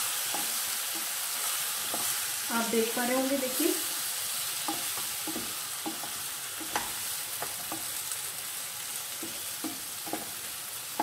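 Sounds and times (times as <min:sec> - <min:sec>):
slices sizzling in hot oil: 0:00.0 - 0:11.0
spatula knocking against pan: 0:04.6 - 0:07.9, 0:09.2 - 0:10.4.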